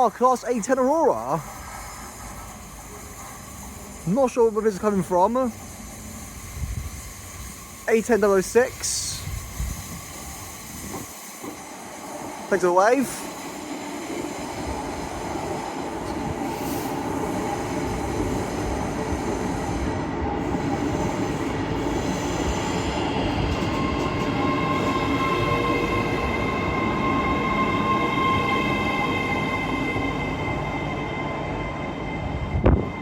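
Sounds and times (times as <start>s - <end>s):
train running noise: 0.0s - 33.0s
high-pitched brake squeal: 19.3s - 33.0s.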